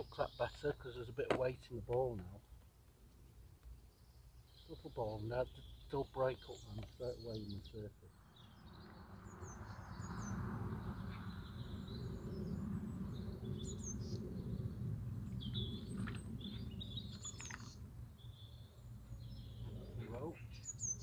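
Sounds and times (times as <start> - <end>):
small birds chirping and singing: 0.0 - 2.4, 3.5 - 21.0
steady low rumble: 8.9 - 20.4.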